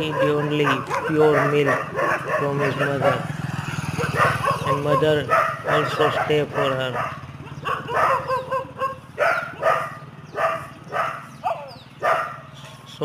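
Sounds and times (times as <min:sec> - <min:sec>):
puppy whining and yipping: 0:07.4 - 0:12.3.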